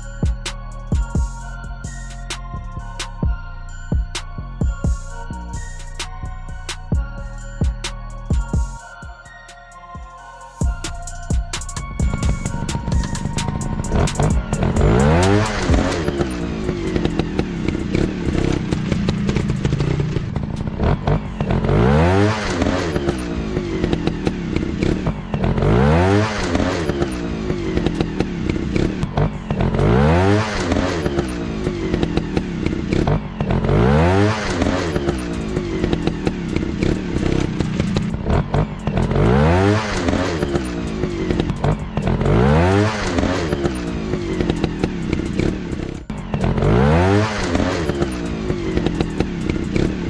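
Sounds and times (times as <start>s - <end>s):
dirt bike engine revving: 11.9s - 50.0s.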